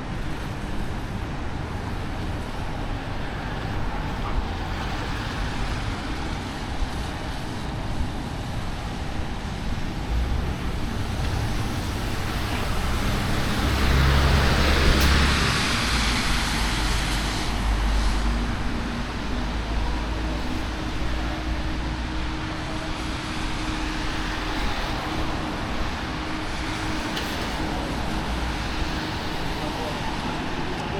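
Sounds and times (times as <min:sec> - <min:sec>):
traffic on wet streets: 0:00.0 - 0:30.9
vehicle passing close: 0:09.9 - 0:22.0.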